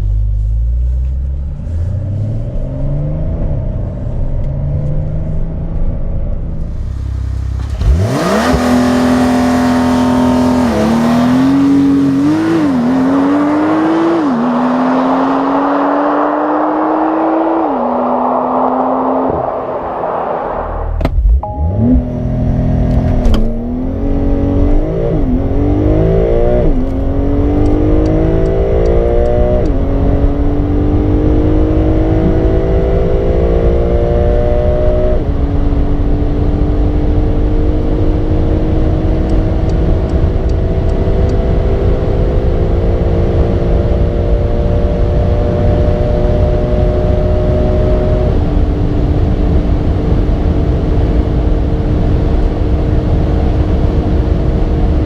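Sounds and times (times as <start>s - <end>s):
road and wind noise: 0.0s - 55.0s
sports car engine at full throttle: 0.0s - 55.0s.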